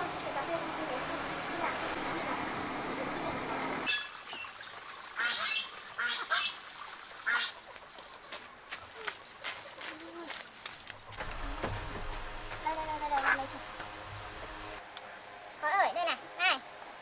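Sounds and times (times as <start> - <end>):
high-pitched insect whine: 6.7 - 17.0.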